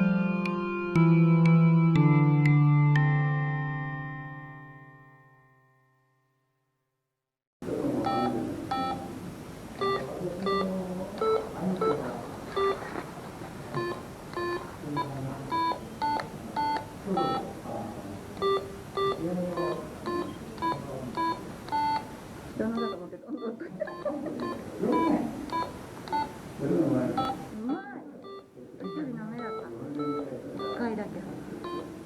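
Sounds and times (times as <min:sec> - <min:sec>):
faint background hubbub: 0:07.6 - 0:32.0
short electronic beeps: 0:09.8 - 0:12.0, 0:12.6 - 0:12.8, 0:13.8 - 0:17.5, 0:18.4 - 0:26.4, 0:27.2 - 0:27.6, 0:28.2 - 0:30.9, 0:31.6 - 0:32.0.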